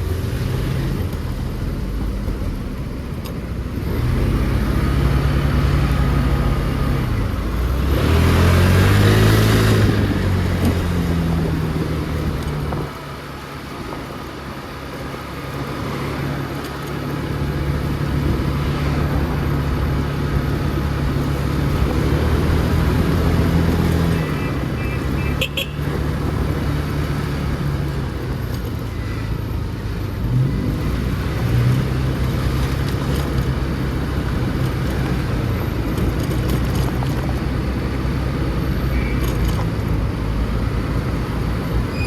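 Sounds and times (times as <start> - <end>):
road noise: 0.0 - 42.0
louder engine passing: 3.8 - 12.1
wind noise: 5.8 - 14.5.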